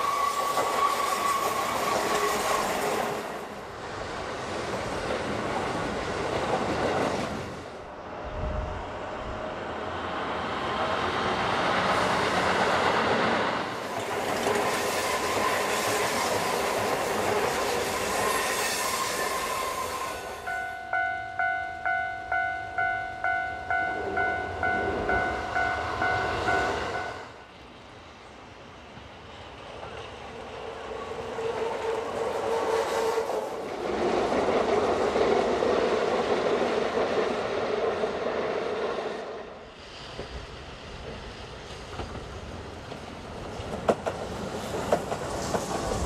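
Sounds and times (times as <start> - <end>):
electric train running on rails: 0.0 - 46.0
wheels clicking over rail joints: 11.7 - 18.4, 40.1 - 46.0
repeating ringing tone: 20.4 - 27.3.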